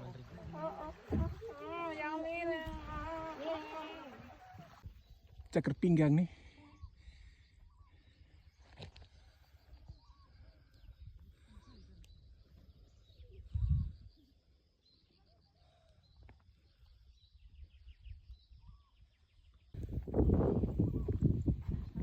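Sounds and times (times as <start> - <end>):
high chatter: 0.0 - 4.8
low thump: 0.6 - 1.5.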